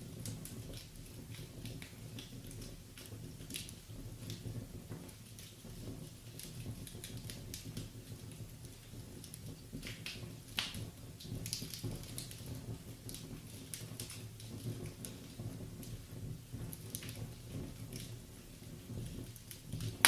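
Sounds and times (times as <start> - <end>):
low rumble of flames: 0.0 - 20.0
wood fire crackling: 0.0 - 20.0.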